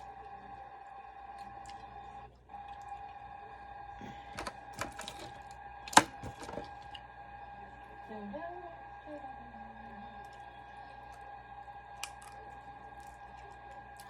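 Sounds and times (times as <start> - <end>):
steady thin hum: 0.0 - 14.0
objects clicking and knocking: 4.3 - 7.0.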